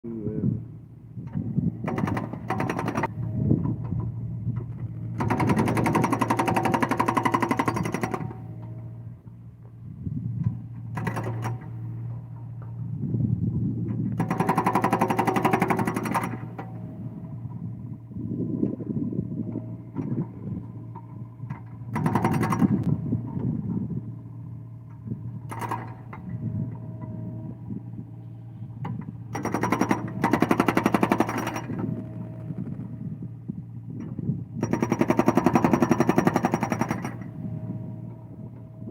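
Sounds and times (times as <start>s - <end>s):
excavator humming: 0.0s - 38.9s
rattle of mechanical clicks: 1.3s - 3.1s, 10.4s - 11.7s, 20.9s - 23.5s, 24.9s - 26.3s, 28.8s - 32.8s.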